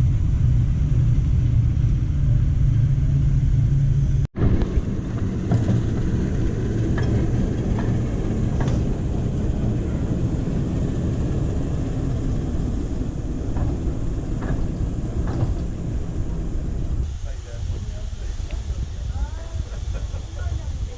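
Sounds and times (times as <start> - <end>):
train rumbling: 0.0 - 20.9.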